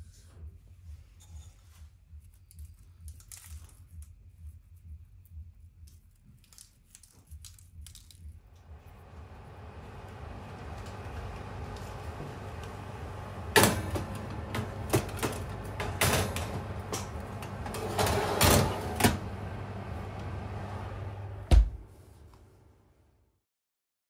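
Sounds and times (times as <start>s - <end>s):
steady low hum: 8.3s - 22.2s.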